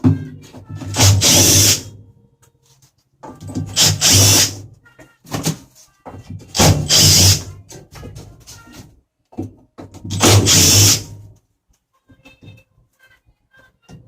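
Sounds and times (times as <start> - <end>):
power drill backing out screws: 10.2 - 11.0.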